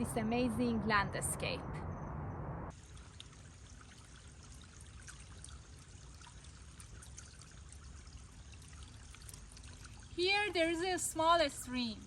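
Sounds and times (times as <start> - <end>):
small stream trickling: 2.7 - 12.0.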